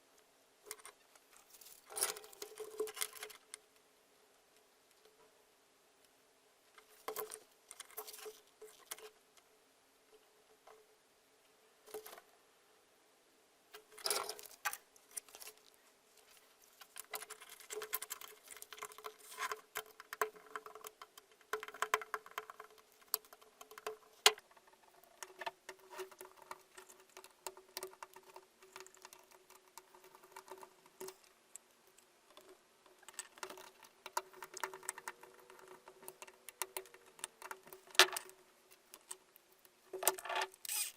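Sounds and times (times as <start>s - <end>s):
faint steady hum: 0.0s - 40.9s
scratching: 21.6s - 40.9s.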